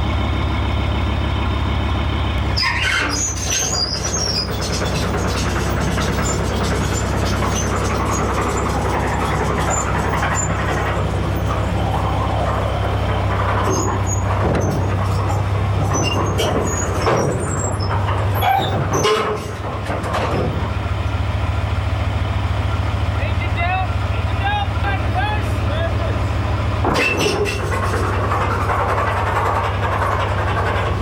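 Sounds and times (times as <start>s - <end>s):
diesel engine droning: 0.0s - 31.0s
high squeaks and clicks: 2.4s - 20.4s, 26.9s - 31.0s.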